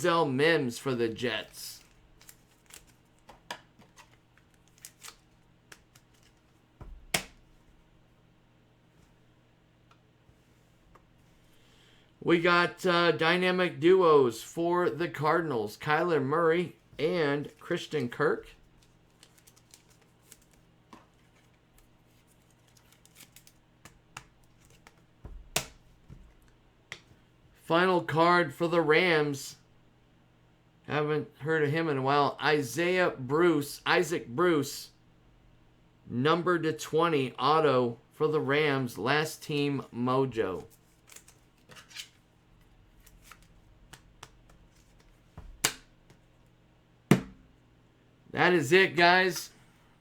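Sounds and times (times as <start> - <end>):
cards rustling: 1.1 - 7.8, 17.0 - 26.5, 40.4 - 46.3.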